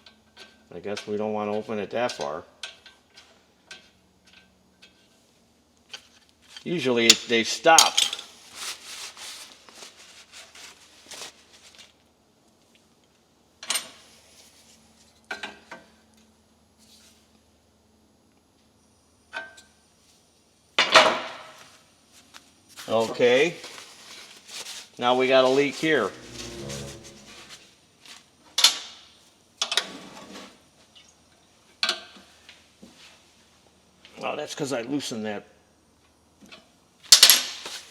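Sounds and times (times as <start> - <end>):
tools and metal fittings clinking: 7.8 - 8.3.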